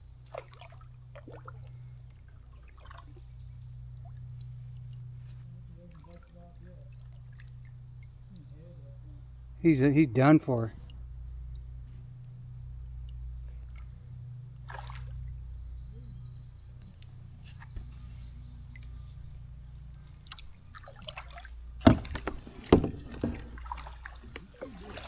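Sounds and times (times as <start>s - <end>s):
water sloshing against kayak: 0.0s - 9.7s, 13.0s - 25.0s
crickets chirping: 0.0s - 25.0s
sharp knocks: 21.8s - 23.8s.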